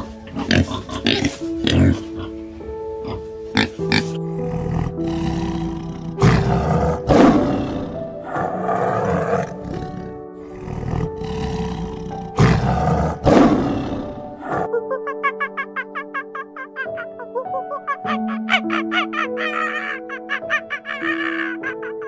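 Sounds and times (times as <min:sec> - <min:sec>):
soft piano music: 0:00.0 - 0:22.0
tiger roaring and growling: 0:03.6 - 0:14.7.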